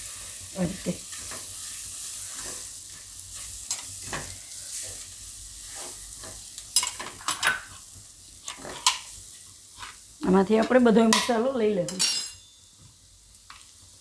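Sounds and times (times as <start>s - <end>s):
oil sizzling: 0.0s - 14.0s
spatula scraping a wok: 0.1s - 10.2s.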